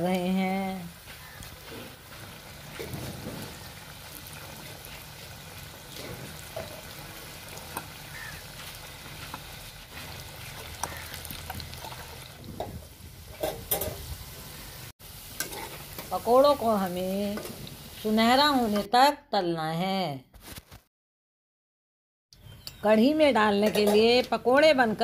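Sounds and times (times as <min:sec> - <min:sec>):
batter sizzling in oil: 0:00.0 - 0:18.9.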